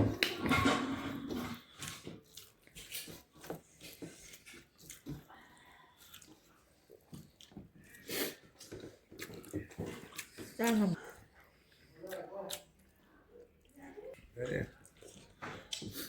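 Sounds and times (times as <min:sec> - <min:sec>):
chewing clicks and mouth smacks: 0:06.0 - 0:16.0.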